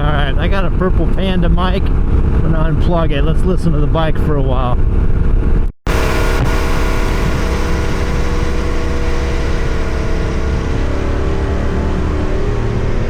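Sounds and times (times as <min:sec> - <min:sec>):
motorcycle engine cruising: 0:05.9 - 0:13.0.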